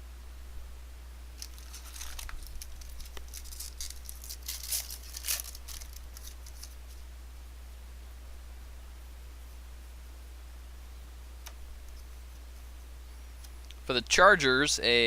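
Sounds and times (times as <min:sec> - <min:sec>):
low steady hum: 0:00.0 - 0:15.0
foil wrapper tearing and crinkling: 0:01.4 - 0:07.0.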